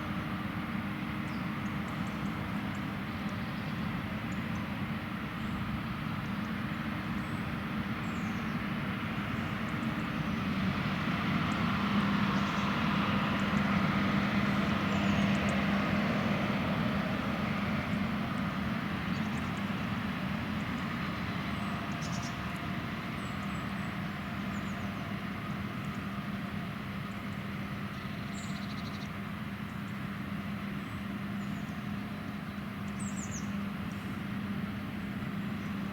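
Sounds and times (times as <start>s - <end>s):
combine harvester droning: 7.6s - 35.9s.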